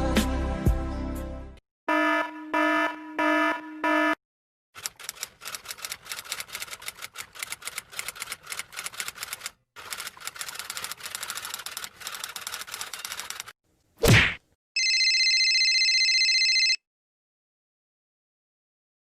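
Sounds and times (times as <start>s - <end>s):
typewriter keys clacking: 4.8s - 13.5s
loud short swish: 14.0s - 14.4s.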